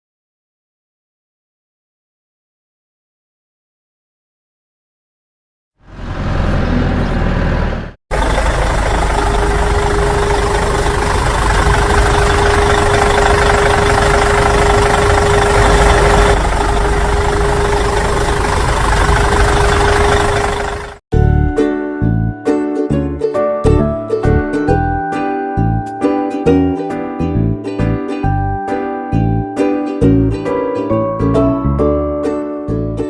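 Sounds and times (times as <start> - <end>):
engine running: 5.8 - 21.0.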